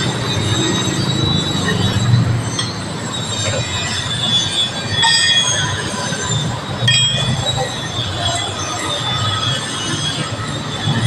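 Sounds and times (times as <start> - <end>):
high-pitched squealing: 0.0 - 11.0
metallic clank: 6.8 - 7.7.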